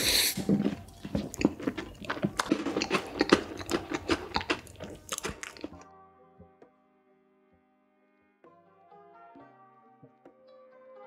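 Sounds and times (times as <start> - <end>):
close chewing mouth sounds: 0.0 - 5.8
faint music with held notes: 0.0 - 11.0.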